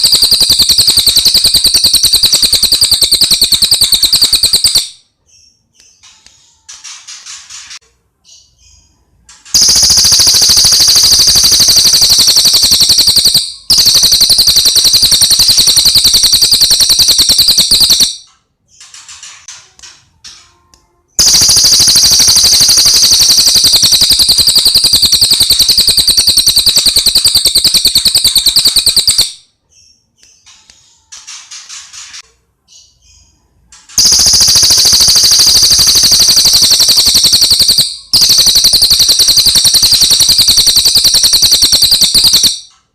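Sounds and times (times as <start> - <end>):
bird chirps: 0.0 - 7.6, 8.2 - 19.0, 21.2 - 31.1
rapid high-pitched bird trills: 0.0 - 19.5, 21.2 - 33.3, 33.9 - 42.8.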